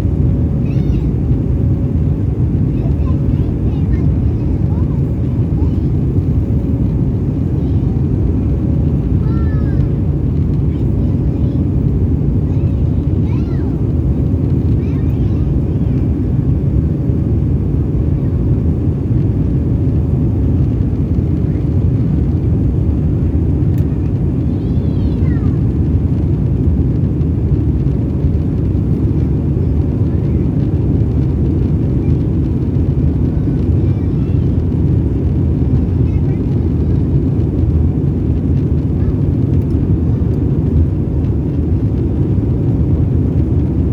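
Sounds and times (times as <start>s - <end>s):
airliner cabin engine rumble: 0.0s - 43.9s
faint voices: 35.8s - 37.2s.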